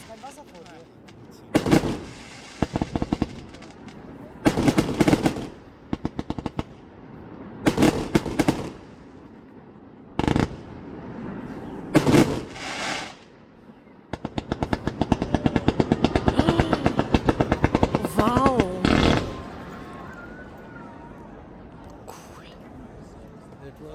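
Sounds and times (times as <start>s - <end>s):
rapid-fire firework bangs: 0.0s - 7.0s, 7.6s - 9.3s, 10.2s - 11.0s, 11.9s - 13.3s, 14.1s - 19.7s
fireworks crackling: 0.0s - 9.6s, 10.2s - 13.5s, 14.1s - 20.6s
heavy firework bang: 1.5s - 3.4s.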